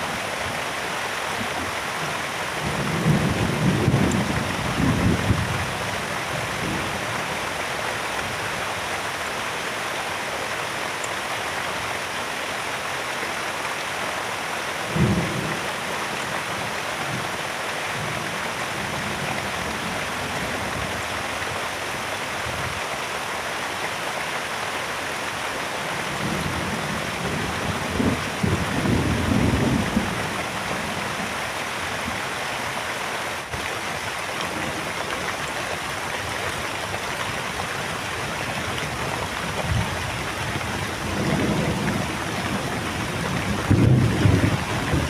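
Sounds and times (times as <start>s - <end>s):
heavy rain: 0.0s - 45.0s
thunder rumbles: 40.6s - 45.0s.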